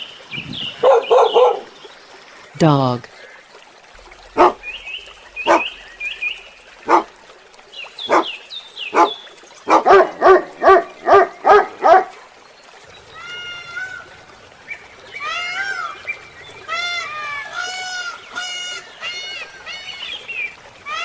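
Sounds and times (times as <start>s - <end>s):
dog barking: 0.8s - 1.7s, 4.4s - 4.6s, 6.9s - 7.1s, 8.1s - 8.3s, 9.7s - 12.2s.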